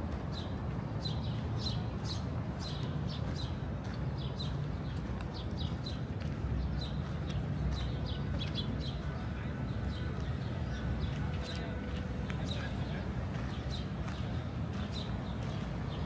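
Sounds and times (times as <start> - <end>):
city background rumble: 0.0 - 16.0.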